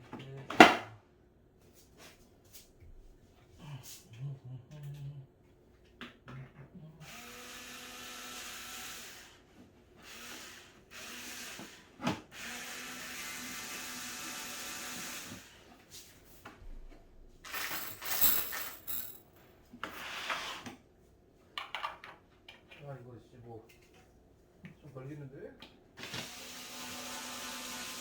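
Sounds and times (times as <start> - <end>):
parts clicking and rattling: 17.5 - 19.4.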